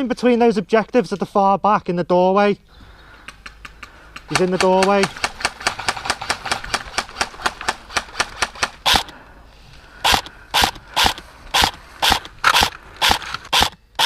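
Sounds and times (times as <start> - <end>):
airsoft gun shots: 4.3 - 9.1, 10.0 - 14.0.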